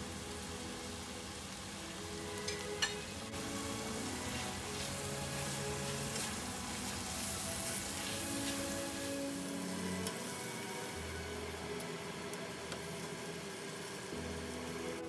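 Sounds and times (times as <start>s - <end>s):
meat and peppers sizzling in pan: 0.0s - 15.0s.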